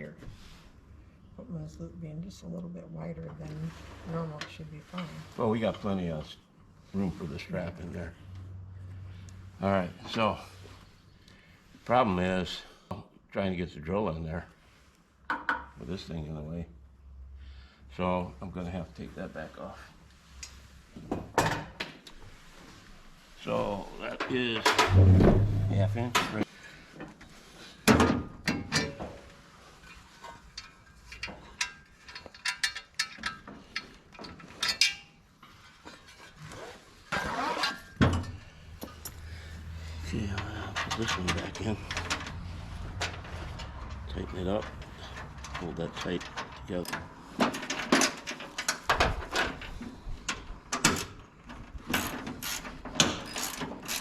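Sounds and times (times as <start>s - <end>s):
hand tools clicking and clinking: 30.6s - 35.1s, 38.2s - 39.3s, 52.4s - 54.0s
ratchet wrench clicking: 52.0s - 54.0s.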